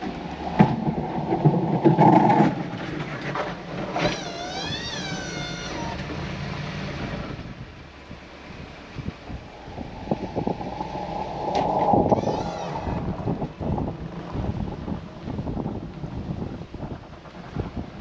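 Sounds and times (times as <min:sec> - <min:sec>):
rough rumbling clatter: 0:00.0 - 0:18.0
high wavering squeal: 0:09.3 - 0:13.2.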